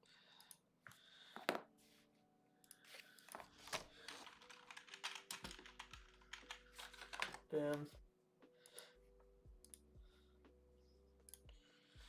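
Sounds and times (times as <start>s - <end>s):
typing on computer keyboard: 3.3s - 7.5s.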